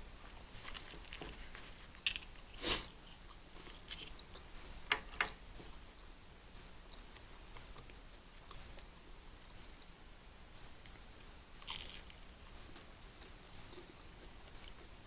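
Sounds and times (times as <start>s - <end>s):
person chewing and biting food: 11.6s - 12.2s.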